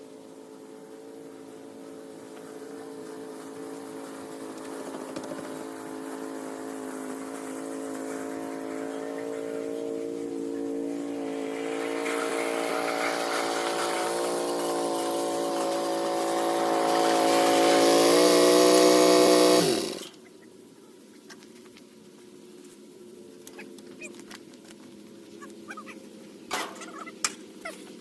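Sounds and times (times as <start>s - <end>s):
engine running and winding down: 0.0s - 20.2s.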